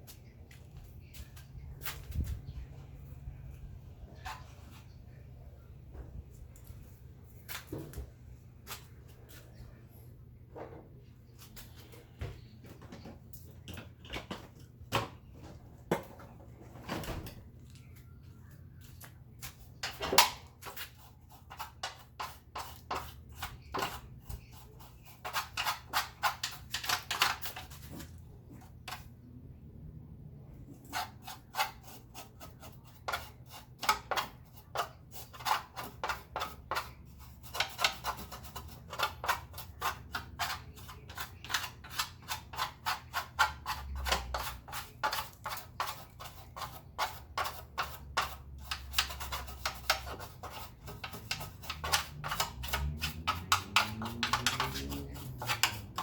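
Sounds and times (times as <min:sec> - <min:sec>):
low steady hum: 0:27.6 - 0:30.9.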